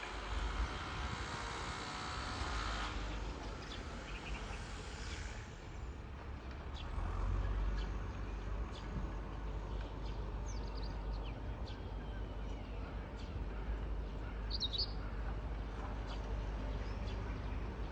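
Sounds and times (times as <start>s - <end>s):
passing vehicle hiss: 0.0s - 6.2s
city traffic rumble: 0.0s - 17.9s.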